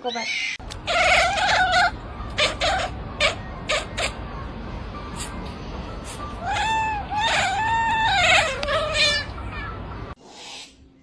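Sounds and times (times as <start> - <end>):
cat meowing: 0.9 - 4.2, 6.4 - 9.8
cat yowling: 0.9 - 4.2, 6.4 - 9.8.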